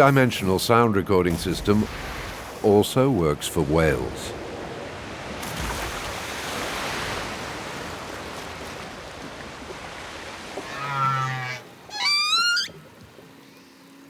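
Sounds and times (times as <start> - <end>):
sea noise wash: 0.0 - 14.0
whale calls underwater: 10.6 - 13.8.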